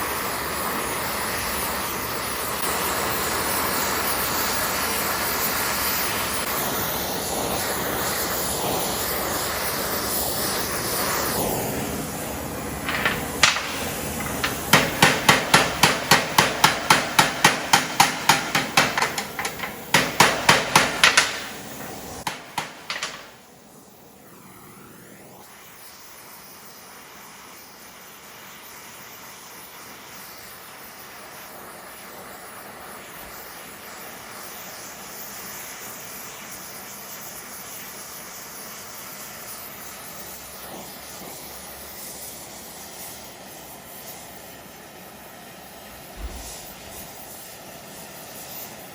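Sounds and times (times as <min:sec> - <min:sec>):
torch roaring: 0:07.3 - 0:14.9
hammer blows on hot steel: 0:12.9 - 0:23.5.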